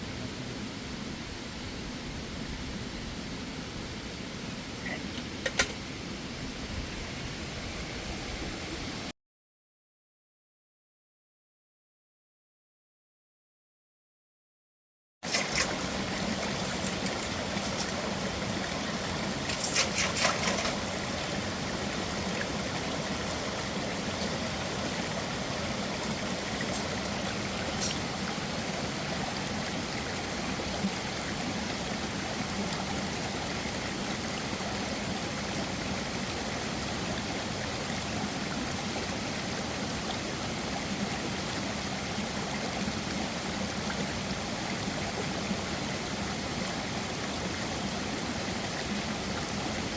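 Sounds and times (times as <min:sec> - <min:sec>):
mountain stream running: 0:15.2 - 0:49.9.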